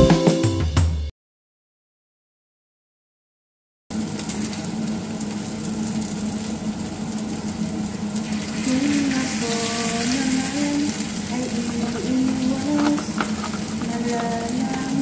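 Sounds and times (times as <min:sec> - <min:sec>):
pitched tune: 0:00.0 - 0:01.0
food sizzling in hot oil: 0:03.9 - 0:15.0.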